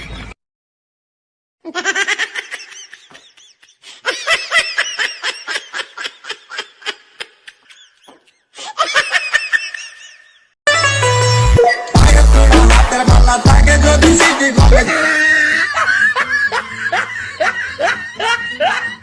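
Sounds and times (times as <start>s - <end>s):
person laughing hard: 1.7s - 10.5s, 13.9s - 19.0s.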